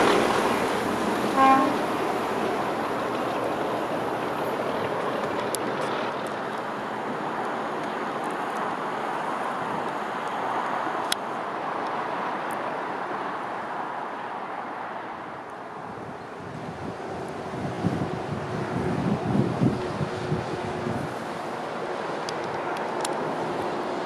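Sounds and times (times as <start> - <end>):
train wheels rushing: 0.0 - 6.6.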